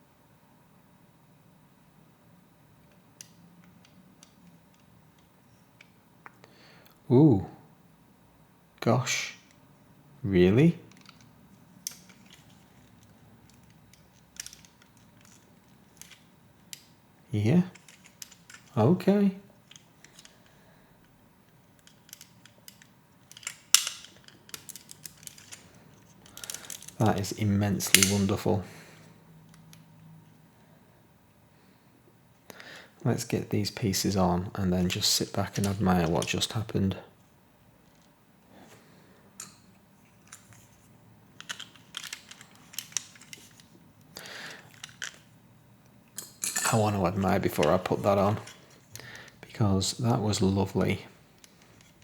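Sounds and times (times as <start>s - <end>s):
plastic parts clicking: 2.8s - 6.4s, 10.9s - 16.9s, 17.7s - 18.8s, 19.6s - 27.0s, 27.8s - 28.4s, 39.4s - 40.7s, 41.4s - 45.3s, 51.4s - 52.0s.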